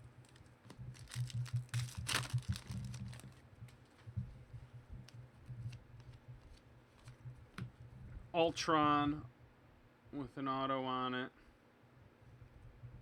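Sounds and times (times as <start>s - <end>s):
steady low hum: 0.0s - 13.0s
cards and wrappers rustling: 0.2s - 4.2s.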